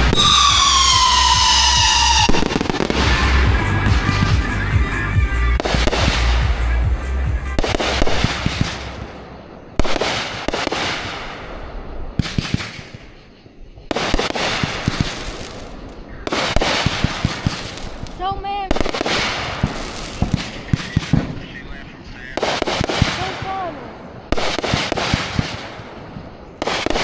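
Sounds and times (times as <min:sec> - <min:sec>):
deep rumble: 0:00.0 - 0:09.6
fireworks bursting with bangs: 0:00.0 - 0:27.0
fireworks crackling: 0:00.0 - 0:27.0.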